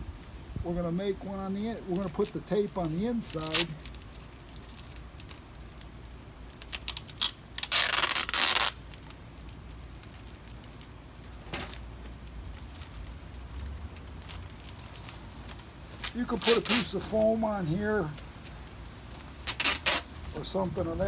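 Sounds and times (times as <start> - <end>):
tape crackling: 0.2 - 21.0
box tape ripped off roll: 6.6 - 9.2, 16.0 - 17.0, 19.3 - 20.3.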